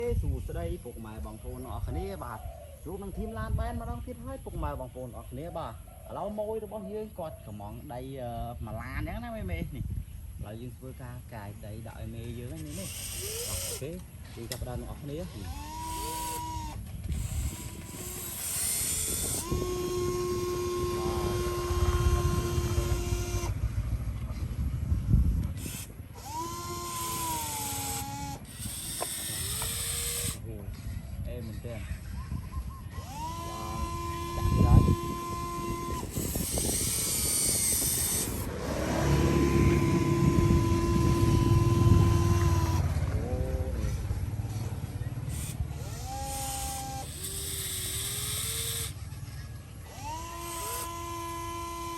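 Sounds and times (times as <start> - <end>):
small motor whining: 12.2 - 51.9
steady high whine: 12.5 - 30.6
low rumbling: 14.8 - 51.9
machine engine running: 15.3 - 30.4, 32.9 - 51.9.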